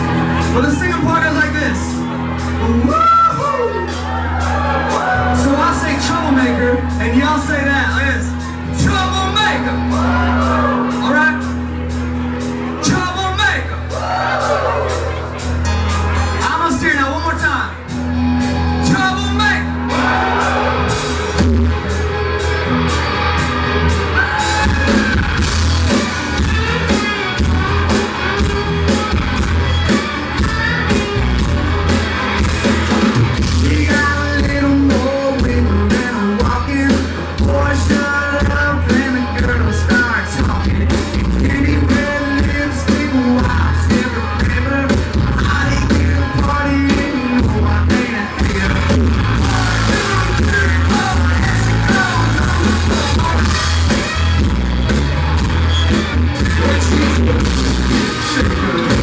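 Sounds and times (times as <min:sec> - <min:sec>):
heavy bass: 0:00.0 - 0:59.0
live country-rock band: 0:00.0 - 0:59.0
steady drum beat: 0:14.0 - 0:59.0
lead vocals: 0:19.8 - 0:21.4, 0:33.5 - 0:54.4, 0:56.4 - 0:59.0.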